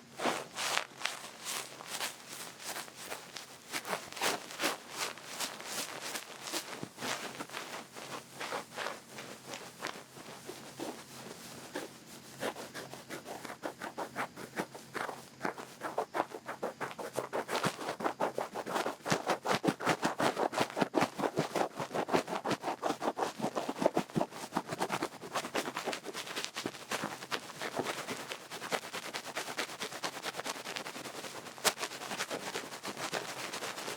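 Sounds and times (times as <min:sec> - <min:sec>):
feather brushing microphone: 0:00.2 - 0:23.8.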